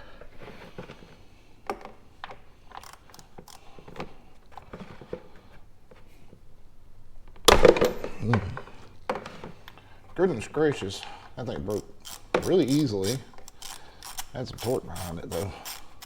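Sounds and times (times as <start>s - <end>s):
socket wrench clinking and clicking: 2.7s - 4.1s, 11.7s - 16.0s
drain plug cracking loose: 11.6s - 16.0s.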